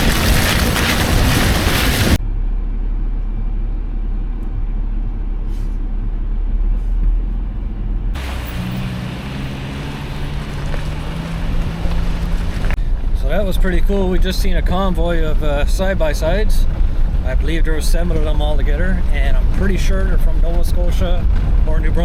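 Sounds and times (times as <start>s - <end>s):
wind noise on microphone: 0.0s - 2.2s, 14.4s - 22.0s
low road rumble: 0.0s - 22.0s
steady engine hum: 0.0s - 22.0s.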